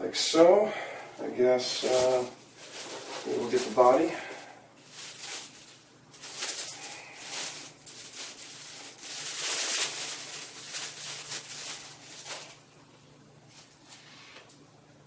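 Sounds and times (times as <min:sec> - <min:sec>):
packaging crackling and rustling: 0:01.7 - 0:12.7.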